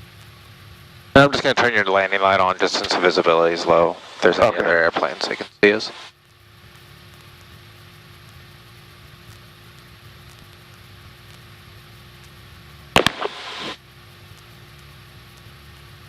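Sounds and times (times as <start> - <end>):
airplane engine humming: 1.2 - 6.1, 13.0 - 13.8
sharp click: 13.0 - 13.8.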